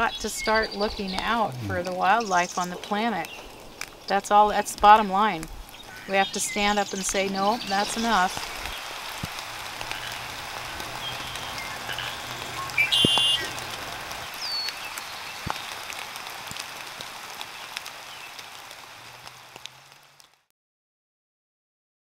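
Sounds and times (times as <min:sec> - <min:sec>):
light rain pattering: 0:00.0 - 0:20.5
short bird calls: 0:09.8 - 0:13.7.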